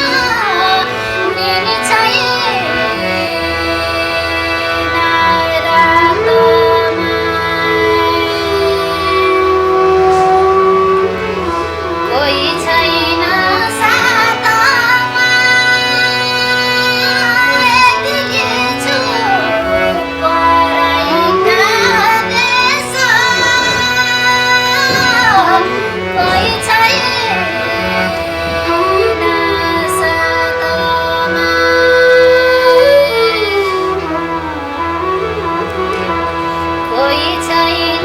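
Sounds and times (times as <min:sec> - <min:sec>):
folk song with ornamented melody: 0:00.0 - 0:38.0.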